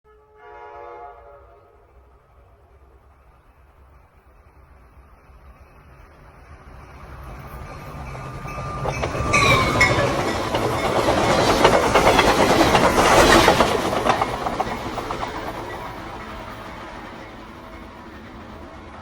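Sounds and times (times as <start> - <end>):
train horn: 0.0 - 3.0
train wheels clattering over rail joints: 6.8 - 18.8.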